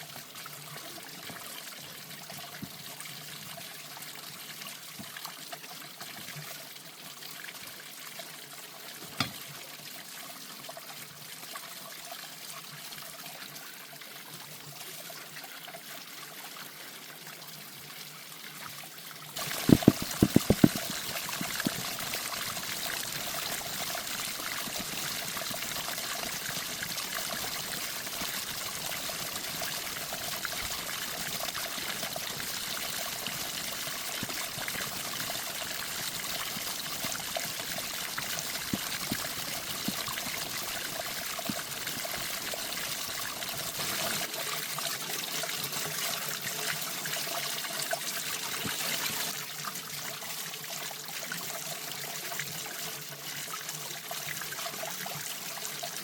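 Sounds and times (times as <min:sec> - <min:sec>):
water running and trickling: 0:00.0 - 0:56.0.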